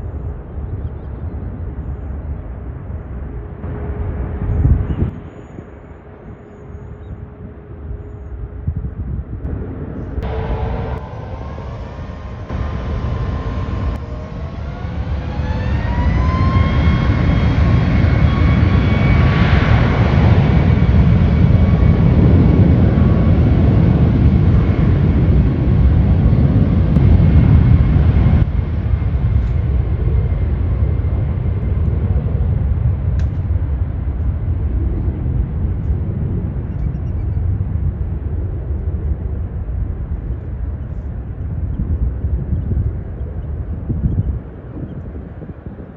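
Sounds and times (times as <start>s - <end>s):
jet engines spooling up: 9.5s - 32.7s.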